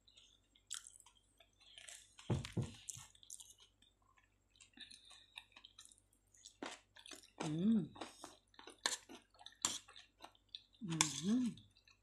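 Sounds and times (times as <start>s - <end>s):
person chewing with wet smacking: 0.0s - 12.0s
thump: 2.3s - 2.8s.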